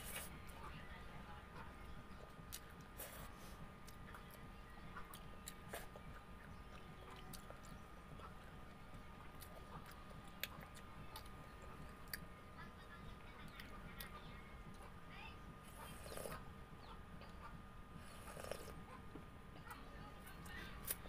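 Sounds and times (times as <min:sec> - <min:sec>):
faint steady hum: 0:00.0 - 0:21.0
person chewing: 0:06.7 - 0:07.8, 0:18.0 - 0:18.8.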